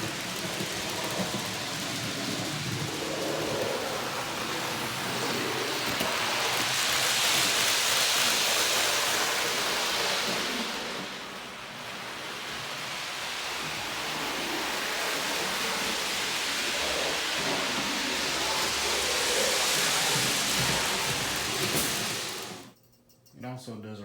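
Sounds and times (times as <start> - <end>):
model train motor whirring: 0.0 - 22.7.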